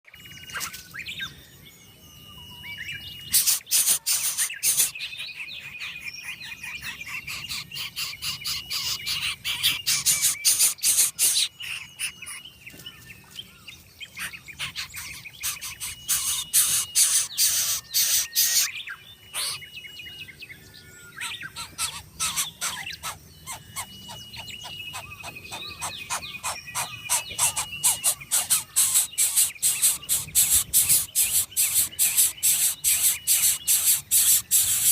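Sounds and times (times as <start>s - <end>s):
thin whistled bird notes: 0.0s - 7.4s, 8.0s - 34.9s
chicks making raspy begging calls: 3.4s - 5.3s, 6.9s - 12.3s, 14.3s - 18.7s, 19.3s - 19.7s, 21.2s - 34.9s.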